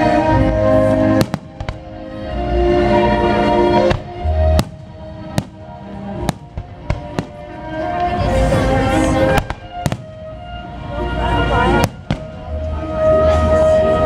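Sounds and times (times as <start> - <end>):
music playing: 0.0 - 14.0
fireworks exploding: 0.4 - 2.1, 3.7 - 10.7, 11.3 - 12.7.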